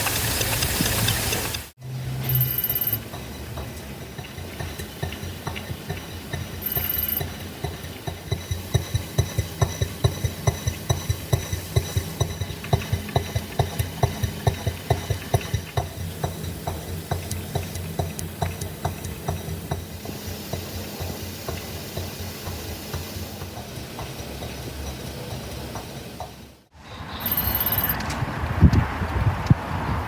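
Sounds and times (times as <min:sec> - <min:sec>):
small model engine running: 0:06.6 - 0:07.3.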